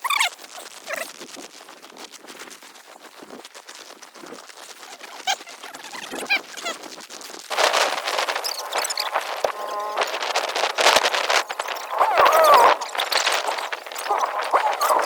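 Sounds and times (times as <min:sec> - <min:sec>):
footsteps crunching in snow: 0:07.5 - 0:15.0
loud rushing noise: 0:07.5 - 0:15.0
small birds chirping: 0:07.5 - 0:15.0.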